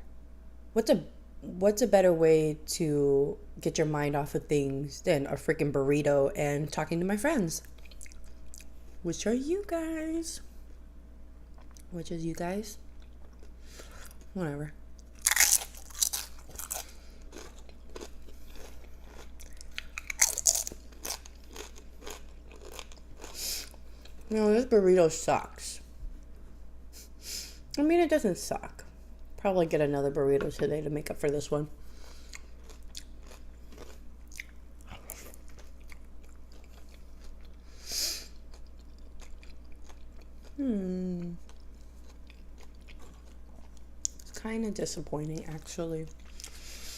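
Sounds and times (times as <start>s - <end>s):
steady low hum: 0.0s - 46.9s
crunchy chewing: 15.0s - 24.2s, 32.0s - 44.3s.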